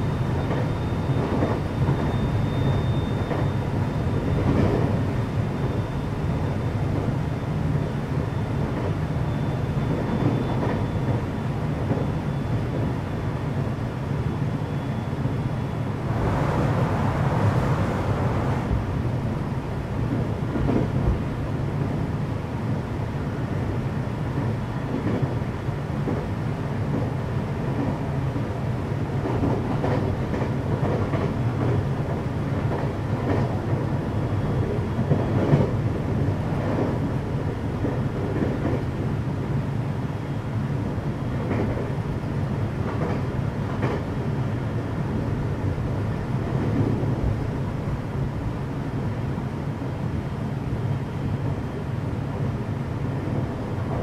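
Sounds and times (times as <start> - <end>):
train wheels rumbling on rails: 0.0 - 54.0
rush of noise: 15.8 - 20.0.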